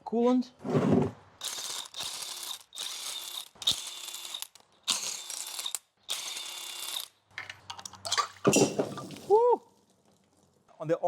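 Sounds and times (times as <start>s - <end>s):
ratchet wrench clicking: 1.4s - 7.1s.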